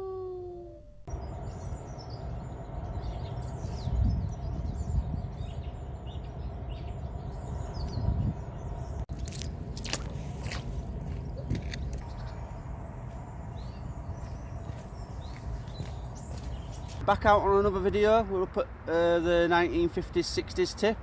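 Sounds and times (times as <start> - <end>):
small birds chirping: 1.1 - 17.0
wind rumbling on microphone: 1.1 - 18.2.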